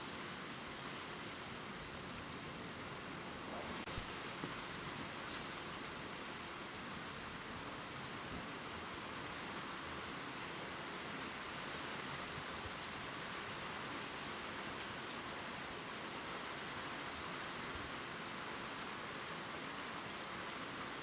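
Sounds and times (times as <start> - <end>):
gentle rain on leaves: 0.0 - 21.0
faint raindrop ticks: 12.0 - 15.0, 15.8 - 16.6, 20.5 - 20.9.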